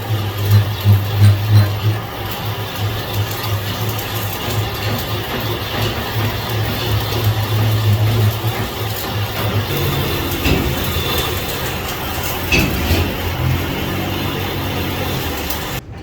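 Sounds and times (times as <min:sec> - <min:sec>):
workshop machinery humming: 0:00.0 - 0:16.0
short squeaks: 0:00.2 - 0:02.2, 0:07.4 - 0:15.8
clicks: 0:06.7 - 0:16.0.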